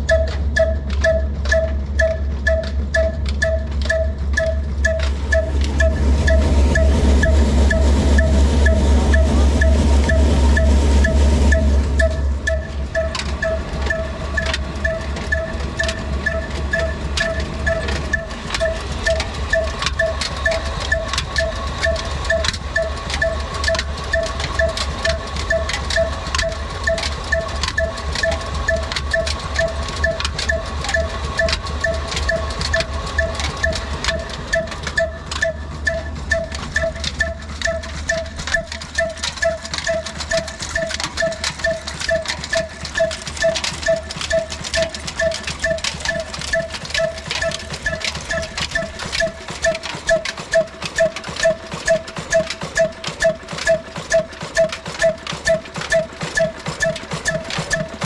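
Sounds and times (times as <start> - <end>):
diesel engine running: 0.0 - 58.0
stone flour mill knocking: 12.0 - 58.0.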